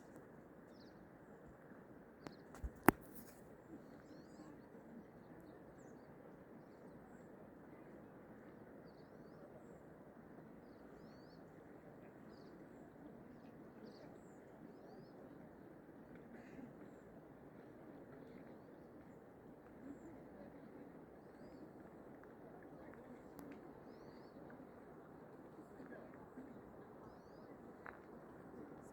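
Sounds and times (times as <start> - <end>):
songbirds chirping: 10.6 - 15.6, 18.2 - 28.9.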